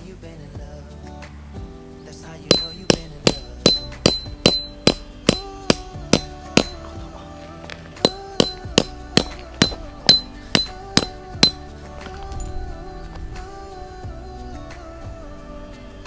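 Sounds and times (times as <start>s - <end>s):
instrumental song backing: 0.0s - 16.0s
hammer on metal tent peg: 2.5s - 6.8s, 8.1s - 12.4s.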